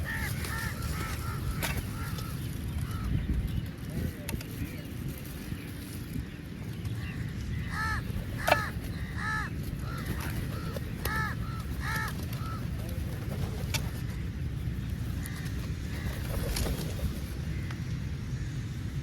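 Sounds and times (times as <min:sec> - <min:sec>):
crows cawing: 0:00.0 - 0:03.2, 0:07.0 - 0:12.9, 0:15.2 - 0:16.2.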